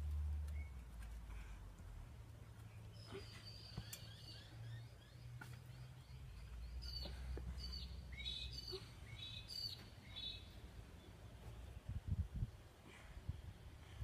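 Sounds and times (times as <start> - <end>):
birds chirping: 2.6 - 12.0.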